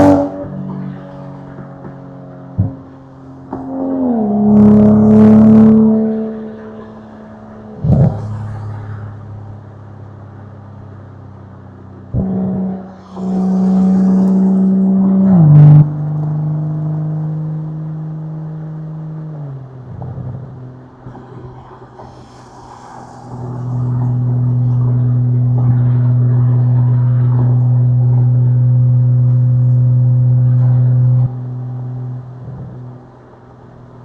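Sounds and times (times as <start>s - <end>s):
car exhaust roaring: 0.0s - 34.0s.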